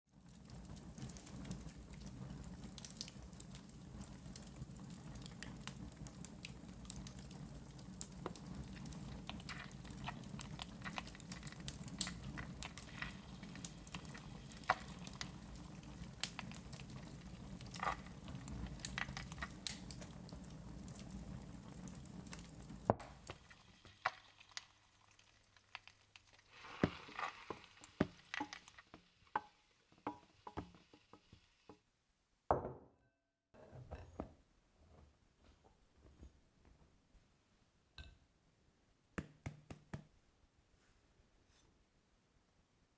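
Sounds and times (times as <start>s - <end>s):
wood fire crackling: 0.1s - 31.7s.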